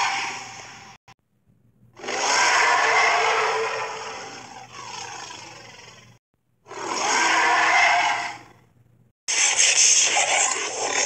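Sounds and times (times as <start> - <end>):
cartoon dinosaur roaring: 2.0 - 8.6, 9.5 - 11.0.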